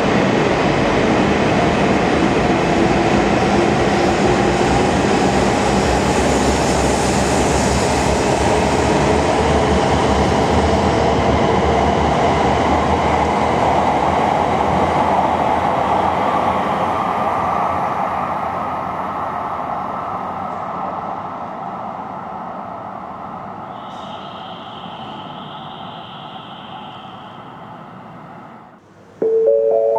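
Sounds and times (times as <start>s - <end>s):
high-speed train rushing past: 0.0s - 29.9s.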